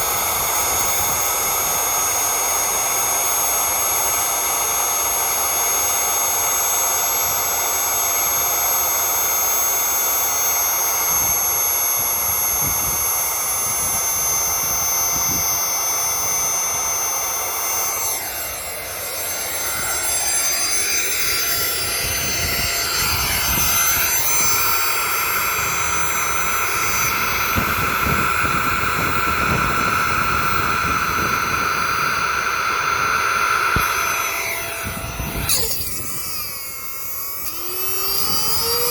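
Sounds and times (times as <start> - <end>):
vacuum cleaner motor whining: 0.0 - 38.9
wind rumbling on microphone: 11.2 - 16.9, 21.6 - 38.9.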